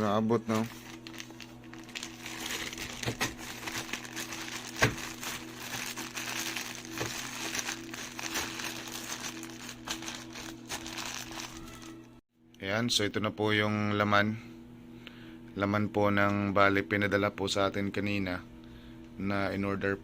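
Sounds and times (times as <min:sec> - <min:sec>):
steady low hum: 0:00.0 - 0:20.0
plastic packaging crinkling: 0:00.4 - 0:12.1.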